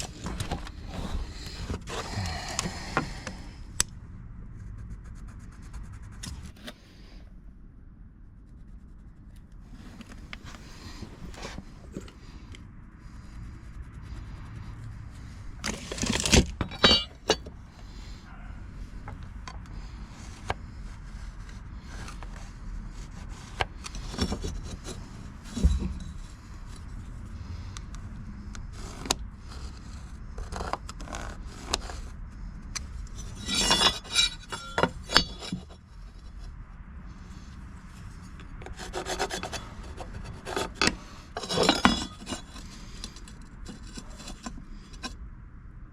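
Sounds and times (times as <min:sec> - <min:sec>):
wood and tools scraping and clattering: 0:00.0 - 0:03.5, 0:09.8 - 0:12.5, 0:15.2 - 0:20.8, 0:21.4 - 0:27.1, 0:32.7 - 0:36.6, 0:38.1 - 0:45.2.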